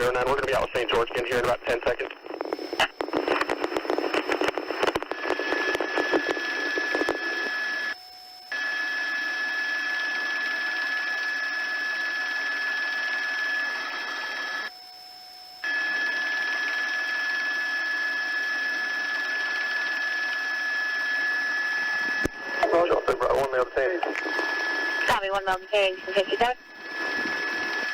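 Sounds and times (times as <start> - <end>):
radio channel hiss: 0.0 - 8.0, 21.8 - 27.9
faint steady whine tones: 0.0 - 27.9.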